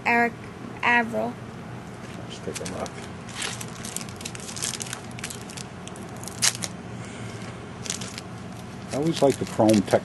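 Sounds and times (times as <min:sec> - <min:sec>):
foil wrapper crinkling: 0:02.5 - 0:06.8, 0:07.8 - 0:10.0
foil wrapper snap: 0:02.5 - 0:06.8, 0:08.9 - 0:10.0.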